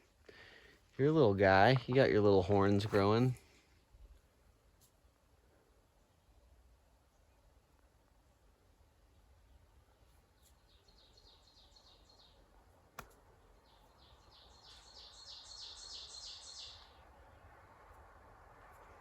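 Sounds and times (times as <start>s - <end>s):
songbird singing: 0.0s - 3.9s, 9.0s - 19.0s.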